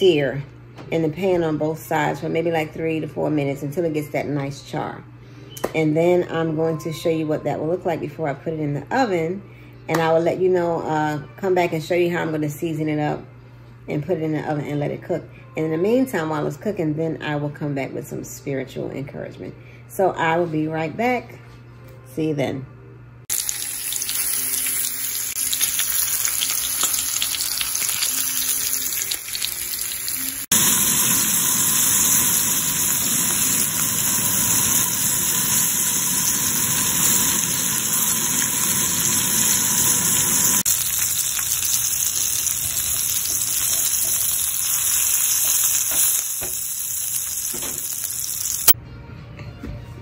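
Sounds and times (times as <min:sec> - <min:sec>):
meat sizzling in a pan: 0:23.3 - 0:48.8
onions sizzling in a pan: 0:23.3 - 0:48.8.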